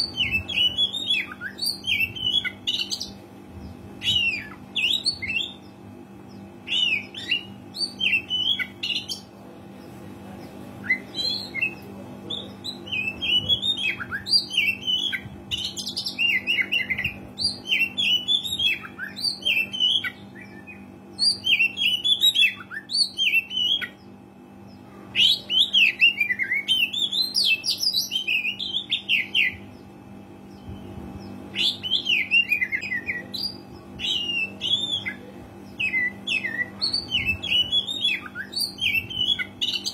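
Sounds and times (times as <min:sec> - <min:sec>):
steady low hum: 0:00.0 - 0:39.9
bird singing whistled phrases: 0:31.5 - 0:39.9.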